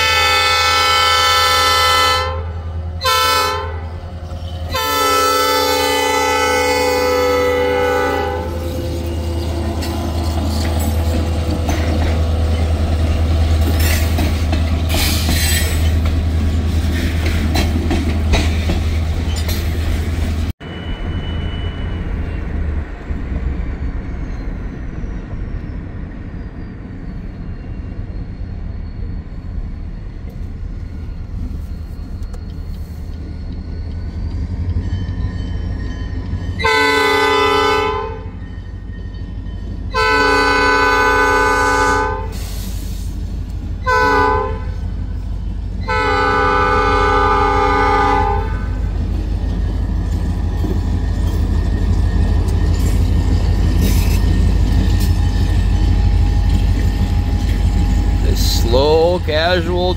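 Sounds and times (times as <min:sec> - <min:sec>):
train horn blast: 0:00.0 - 0:04.0, 0:04.7 - 0:09.9, 0:36.6 - 0:38.4, 0:39.9 - 0:42.5, 0:43.8 - 0:44.9, 0:45.8 - 0:48.9
locomotive engine rumble: 0:00.0 - 0:21.1, 0:38.4 - 0:59.9
railcars rolling: 0:00.0 - 0:59.9.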